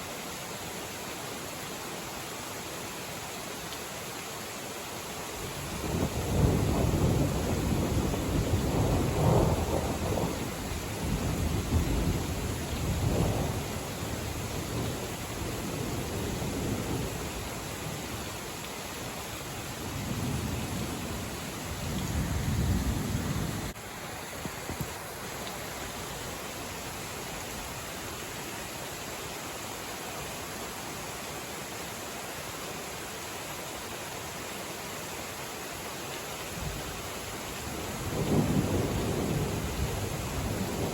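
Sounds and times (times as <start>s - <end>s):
heavy rain: 0.0s - 40.9s
thunder rumbling: 5.7s - 17.3s, 19.8s - 23.8s, 37.8s - 40.9s.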